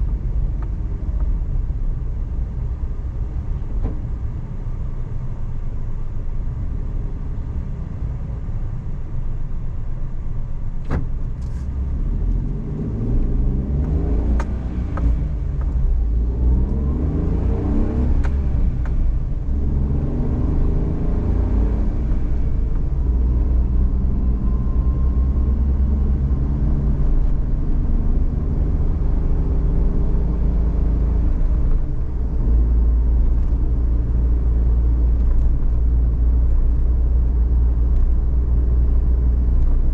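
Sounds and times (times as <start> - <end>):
van engine and road rumble: 0.0 - 39.9
engine revving with gear shifts: 10.8 - 39.9.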